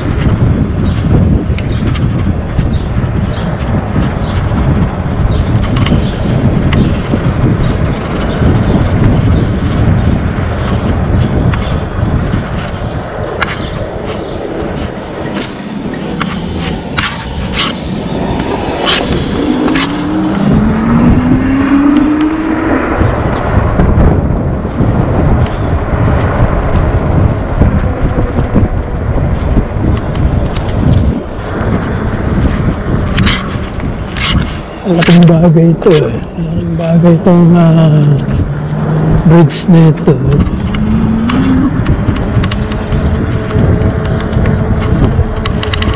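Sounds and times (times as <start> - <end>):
bicycle tyres rolling on pavement: 0.0 - 45.9
wind on microphone: 0.0 - 45.9
scattered clicks: 5.6 - 6.1, 39.8 - 45.9
brief rising tone: 40.7 - 41.8.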